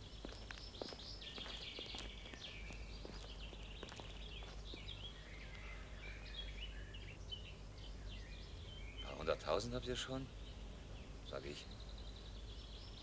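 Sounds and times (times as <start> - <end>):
low background hum: 0.0 - 13.0
small birds twittering: 0.0 - 13.0.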